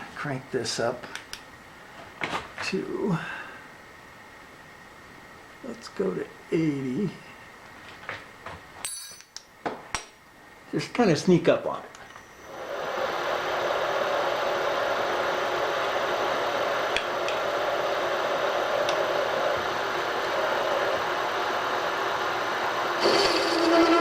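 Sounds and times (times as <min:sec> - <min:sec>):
machine spindle running: 0:22.4 - 0:24.0
pitched buzz of boring cut: 0:23.0 - 0:24.0.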